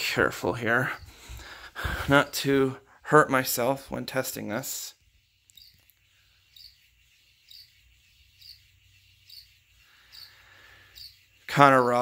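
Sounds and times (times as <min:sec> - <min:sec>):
fan chirping on housing: 0:00.0 - 0:12.0.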